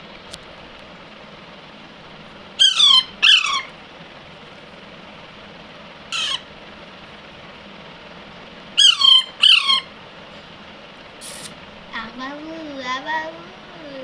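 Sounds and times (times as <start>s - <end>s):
parakeet squawking: 2.6s - 3.8s, 6.1s - 6.5s, 8.8s - 9.9s.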